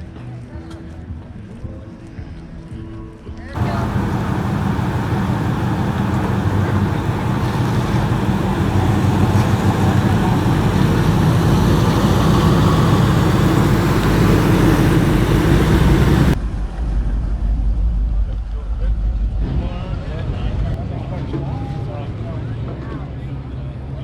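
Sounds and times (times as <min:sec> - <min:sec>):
car engine running: 0:03.6 - 0:16.4.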